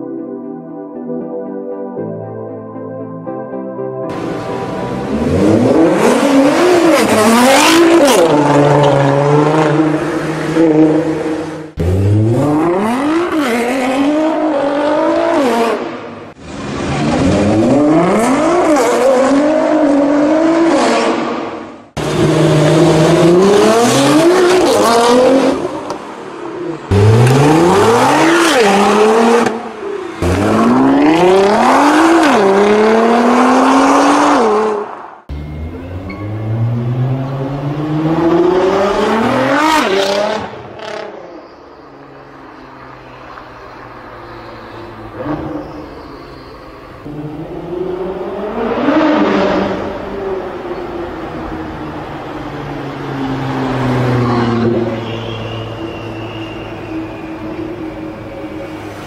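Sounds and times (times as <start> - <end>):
car engine accelerating hard: 26.8 - 34.8.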